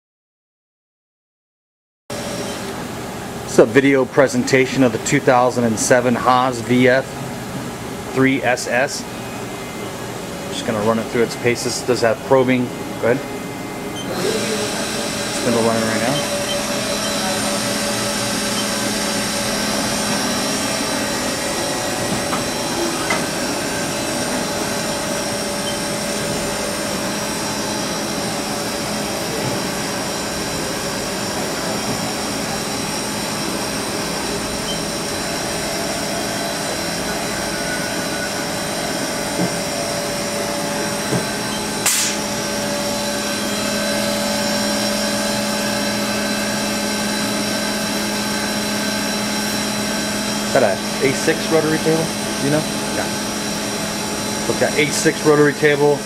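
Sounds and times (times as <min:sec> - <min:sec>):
machining spindle humming: 0:02.1 - 0:56.0.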